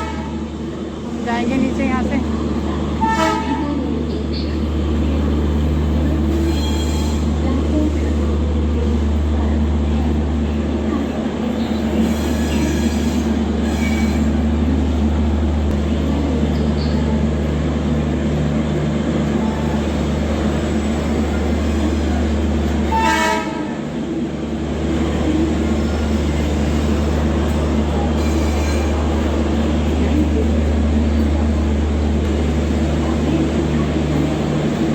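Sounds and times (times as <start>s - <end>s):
train horn blast: 0.0s - 0.5s, 2.9s - 3.8s, 6.3s - 7.4s, 12.0s - 14.4s, 22.7s - 23.9s
train low drone: 0.0s - 34.9s.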